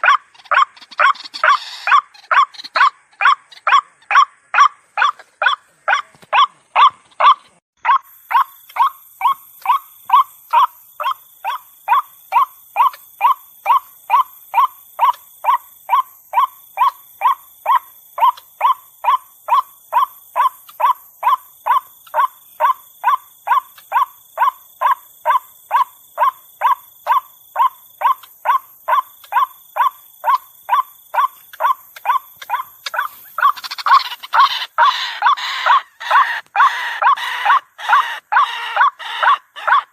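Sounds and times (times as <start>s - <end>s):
waterhen calling: 26.7s - 39.9s.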